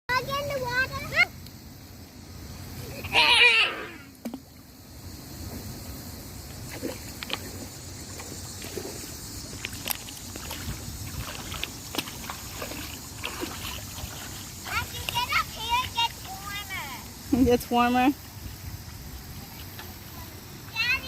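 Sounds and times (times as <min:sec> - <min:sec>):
small clicks and splashes: 0:04.2 - 0:04.6, 0:06.6 - 0:16.8, 0:19.2 - 0:20.1
water sloshing: 0:06.4 - 0:21.0
wind rumble on microphone: 0:08.8 - 0:14.3, 0:17.2 - 0:19.8.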